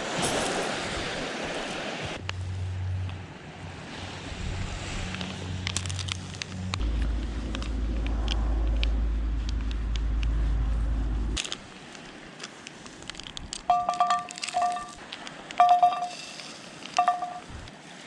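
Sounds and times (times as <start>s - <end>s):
wind rumble on microphone: 0.0s - 11.4s, 17.0s - 17.8s
campfire crackling and popping: 5.1s - 10.4s, 11.4s - 15.8s
short two-tone beeps: 13.7s - 15.0s, 15.6s - 16.3s, 17.0s - 17.4s.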